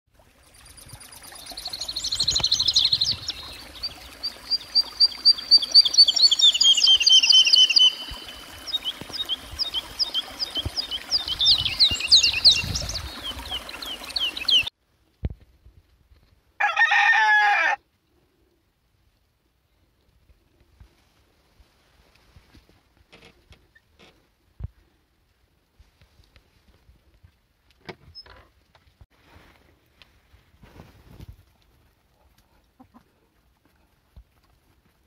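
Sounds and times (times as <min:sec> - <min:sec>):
small birds chirping and trilling: 0:00.5 - 0:14.7
rooster crowing: 0:16.6 - 0:17.8.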